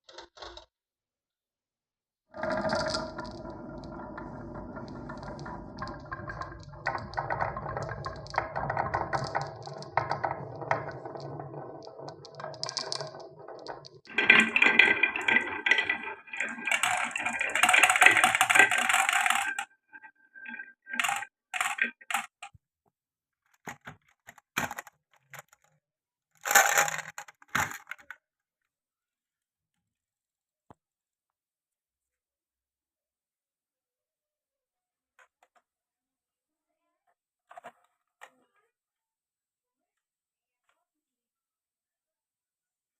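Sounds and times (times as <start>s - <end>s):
marbles rattling through wooden run: 2.4s - 22.5s, 23.7s - 25.6s, 26.4s - 28.2s.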